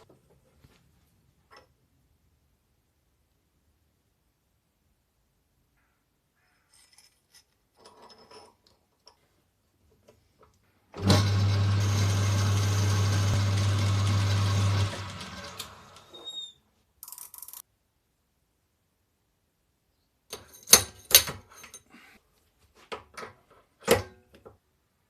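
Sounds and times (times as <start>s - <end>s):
electric motor humming: 11.0s - 16.1s.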